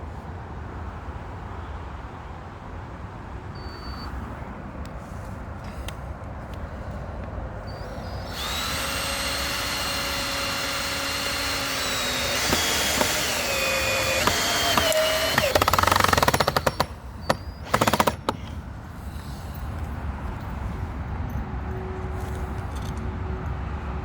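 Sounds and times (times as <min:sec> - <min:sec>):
drill clutch clicking: 0:07.7 - 0:18.6
power drill driving screw into wood: 0:07.7 - 0:18.6.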